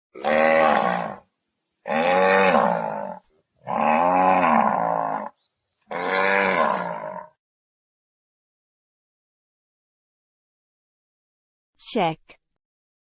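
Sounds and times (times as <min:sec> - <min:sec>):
cattle mooing: 0:00.2 - 0:01.2, 0:01.9 - 0:05.3, 0:05.9 - 0:07.3.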